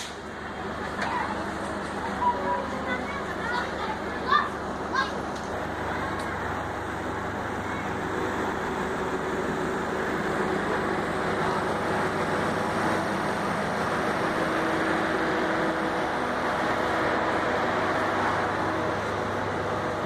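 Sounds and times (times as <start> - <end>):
passenger train rumbling: 0.0 - 20.0
low steady drone: 5.5 - 20.0.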